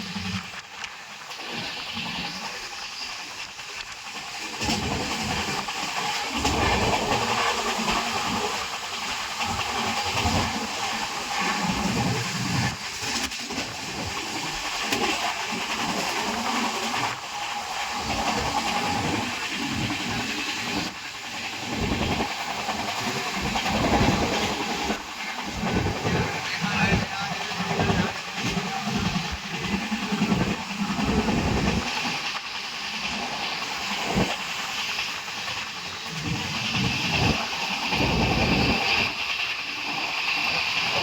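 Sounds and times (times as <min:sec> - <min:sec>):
heavy rain pouring: 0:17.8 - 0:41.0.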